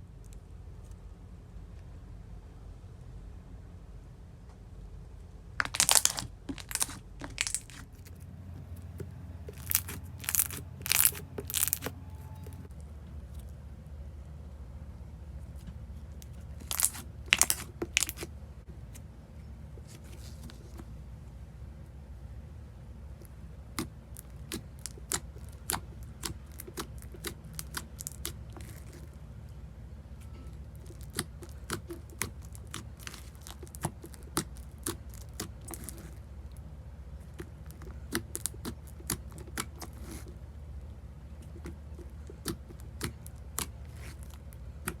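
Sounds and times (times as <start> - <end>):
steady low hum: 0.0 - 45.0
slime squeezed with crackly pops: 9.5 - 11.9, 16.6 - 18.2, 23.8 - 29.0.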